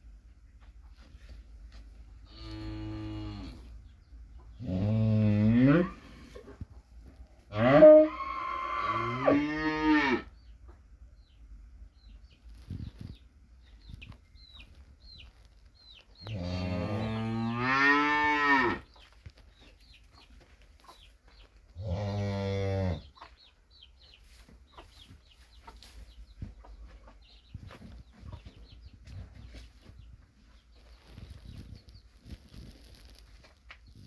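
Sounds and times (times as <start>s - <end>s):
chicks peeping: 3.5s - 4.6s, 10.4s - 17.4s, 18.8s - 21.8s, 23.0s - 34.0s
cattle mooing: 7.5s - 10.3s.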